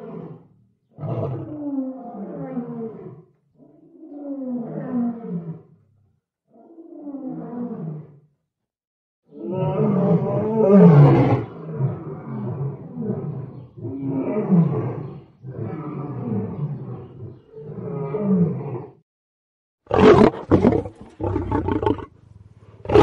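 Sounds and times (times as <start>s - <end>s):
lion roaring: 9.3s - 19.0s, 19.9s - 23.0s.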